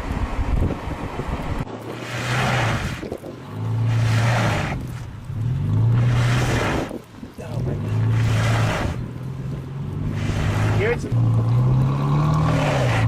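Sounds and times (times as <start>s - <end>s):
wind buffeting microphone: 0.0s - 13.0s
motor revving: 9.8s - 13.0s.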